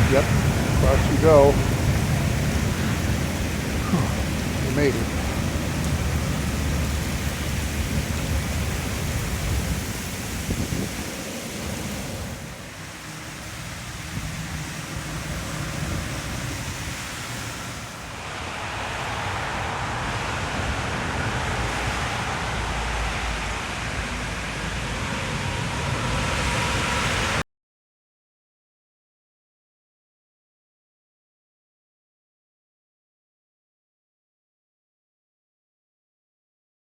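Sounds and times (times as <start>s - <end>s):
low rumbling: 0.0s - 16.8s
heavy rain pouring: 0.0s - 27.4s.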